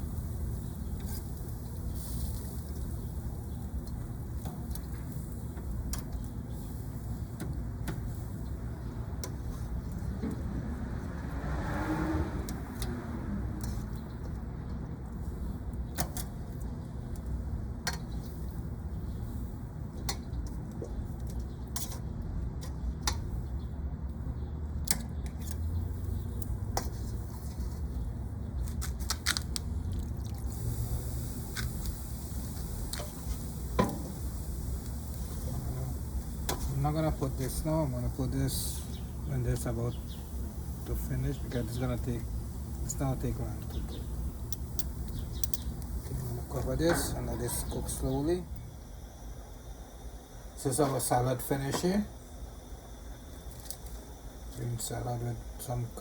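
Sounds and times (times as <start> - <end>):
low outdoor rumble: 0.0 - 56.0.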